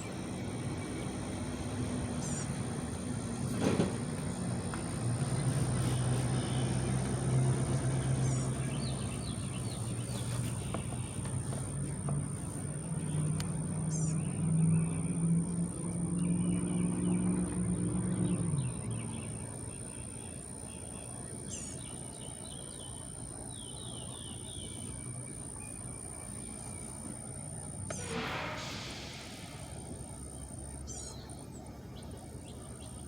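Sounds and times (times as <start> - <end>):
small birds chirping: 0.0 - 3.4, 4.1 - 33.0
vehicle engine humming: 0.0 - 33.0
faint high-pitched whine: 7.3 - 33.0.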